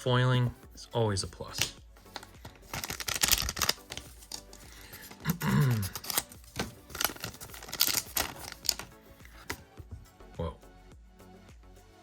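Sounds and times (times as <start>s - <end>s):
cards snapping and sliding: 1.5s - 9.7s.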